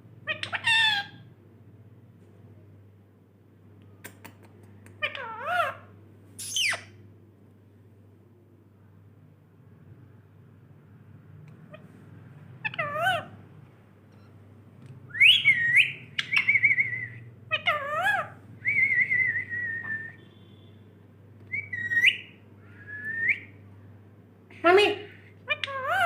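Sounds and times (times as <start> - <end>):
parrot warbling whistles: 15.1 - 20.3, 21.5 - 23.5.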